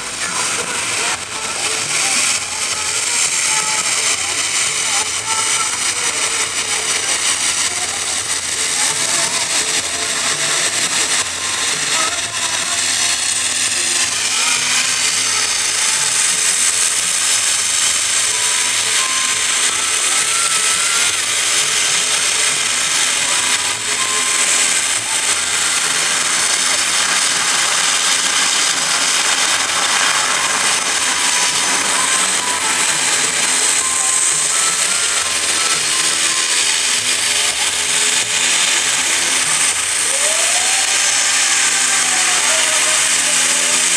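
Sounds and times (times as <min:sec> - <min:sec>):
aircraft turbine engines running: 0:00.0 - 0:43.9.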